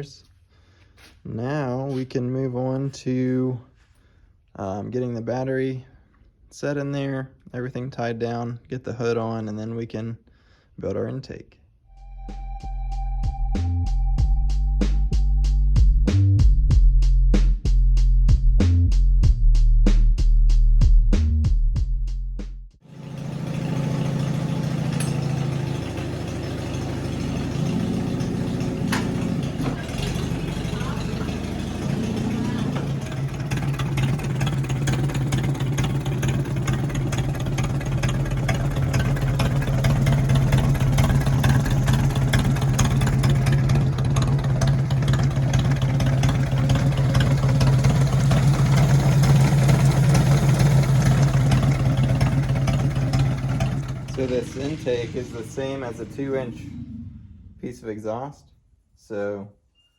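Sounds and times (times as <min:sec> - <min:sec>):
music: 0:11.9 - 0:22.8
tractor engine idling: 0:22.9 - 0:56.7.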